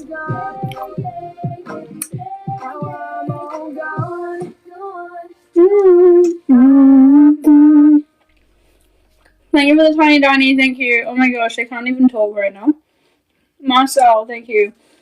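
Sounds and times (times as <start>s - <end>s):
woman singing: 0.0s - 8.1s
low music beat: 0.0s - 10.1s.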